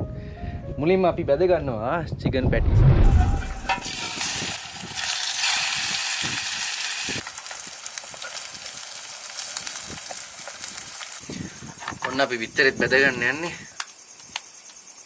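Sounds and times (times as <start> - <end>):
patties sizzling in a pan: 3.8 - 11.6.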